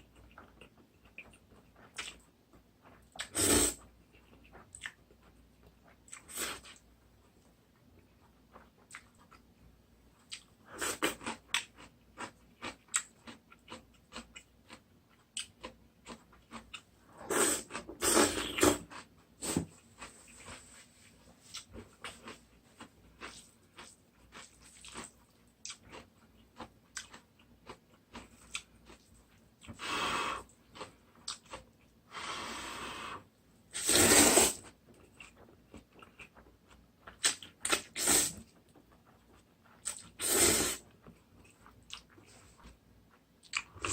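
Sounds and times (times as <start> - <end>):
wet chewing with mouth clicks: 0.0 - 7.4, 8.0 - 9.5, 21.4 - 29.8, 30.5 - 32.0, 34.9 - 43.9
loud noodle slurps: 3.2 - 3.8, 17.3 - 18.8, 32.2 - 34.7, 37.7 - 38.4, 40.2 - 40.8.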